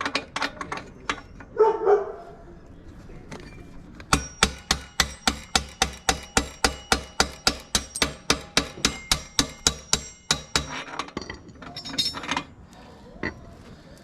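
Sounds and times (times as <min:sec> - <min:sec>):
hammer striking metal axle: 0:04.0 - 0:12.5.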